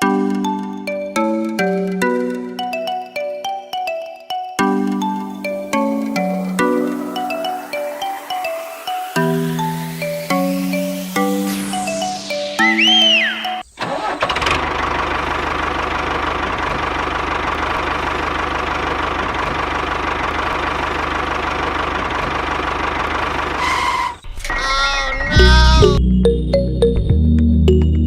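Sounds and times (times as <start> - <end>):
short tune: 4.6 - 14.5
engine running: 5.0 - 24.1.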